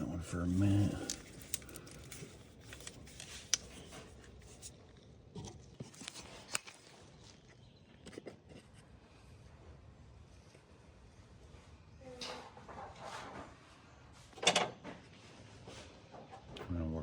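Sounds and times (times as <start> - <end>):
hands clicking on hoses and connectors: 0.6 - 4.7.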